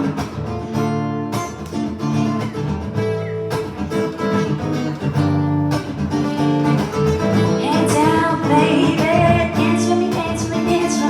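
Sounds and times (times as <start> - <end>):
acoustic guitar strumming: 0.0 - 11.0
person singing: 7.5 - 11.0.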